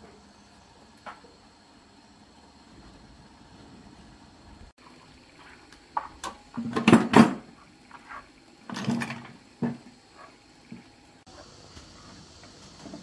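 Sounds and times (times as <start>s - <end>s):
metal parts clattering: 8.7s - 9.4s.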